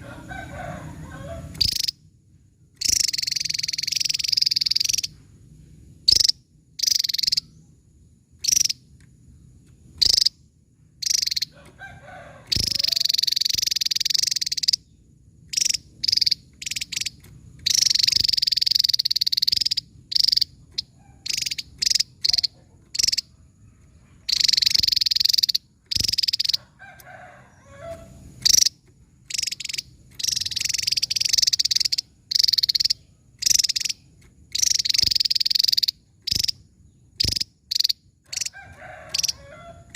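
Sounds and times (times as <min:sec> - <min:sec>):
rapid high bird trilling: 0:00.0 - 0:02.1, 0:02.8 - 0:05.2, 0:06.1 - 0:07.7, 0:08.4 - 0:08.9, 0:10.0 - 0:10.4, 0:11.0 - 0:39.9
bird singing high-pitched notes: 0:01.6 - 0:02.0, 0:02.8 - 0:05.2, 0:11.0 - 0:11.5, 0:12.6 - 0:23.2, 0:28.5 - 0:36.6.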